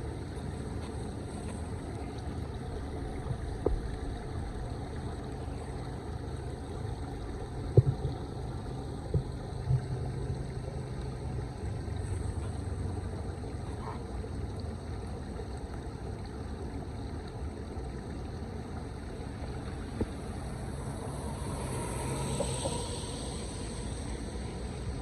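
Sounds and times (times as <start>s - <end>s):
floodwater rushing: 18.6s - 25.0s.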